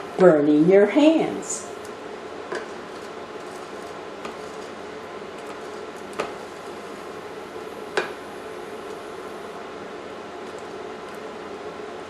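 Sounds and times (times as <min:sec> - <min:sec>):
steady hum: 0:00.0 - 0:12.0
wooden spoon stirring sugar: 0:02.5 - 0:07.0.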